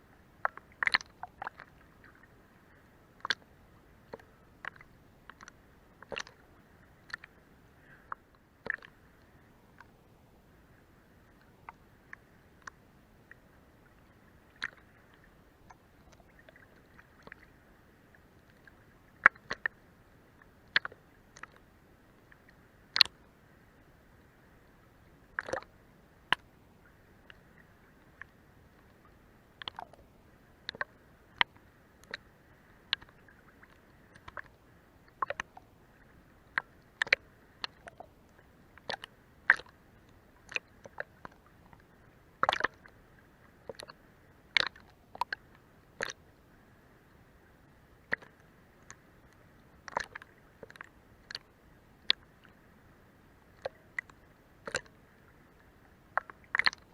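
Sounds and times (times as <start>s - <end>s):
faint water wash: 0.0s - 56.9s
water slapping against hull: 25.4s - 25.7s, 42.4s - 42.9s.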